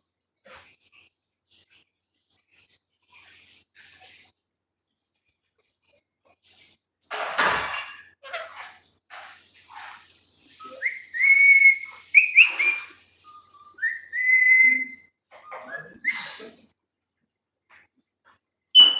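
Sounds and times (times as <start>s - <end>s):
parrot squawking: 10.6s - 16.6s
parrot whistling: 10.6s - 16.6s
parrot chirping: 10.6s - 16.7s.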